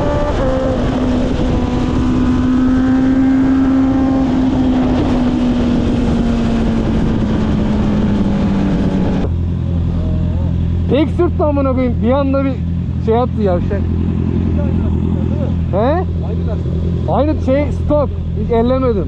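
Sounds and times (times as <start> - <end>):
wind rush: 0.0 - 10.9
motorcycle engine running high revs: 0.0 - 18.8.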